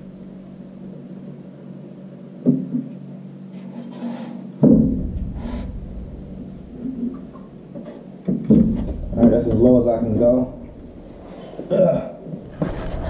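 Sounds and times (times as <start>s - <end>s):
low rumble: 0.0s - 1.5s, 4.6s - 13.0s
loud metal clunk: 4.6s - 13.0s.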